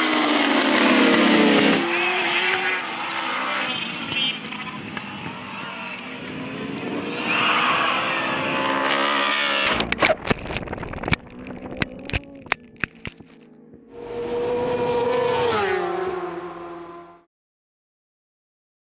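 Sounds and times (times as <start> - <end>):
motorcycle engines revving: 0.0 - 9.8, 13.8 - 17.3
sharp cracks and snaps: 9.6 - 13.4.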